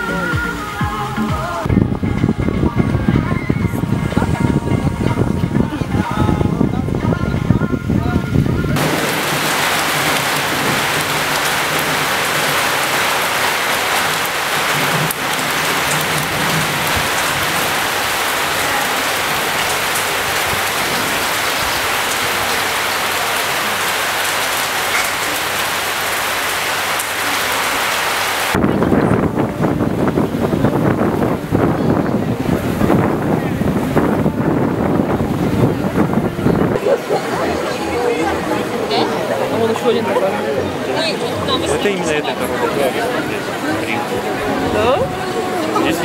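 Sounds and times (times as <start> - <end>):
wind noise on microphone: 0.0 - 23.1, 27.8 - 39.0
heavy rain hissing: 0.0 - 46.0.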